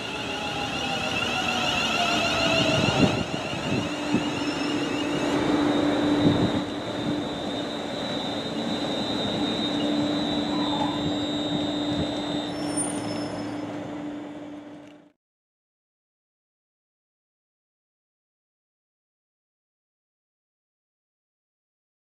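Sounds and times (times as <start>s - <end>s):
electric train slowing to a stop: 0.0s - 15.2s.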